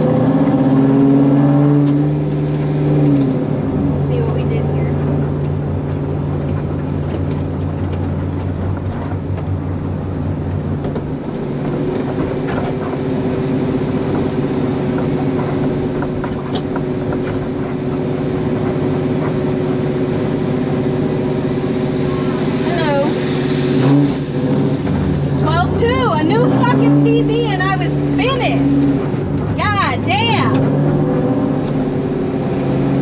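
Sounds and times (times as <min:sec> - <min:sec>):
car engine idling: 0:02.1 - 0:33.0
steady higher whine: 0:08.2 - 0:33.0.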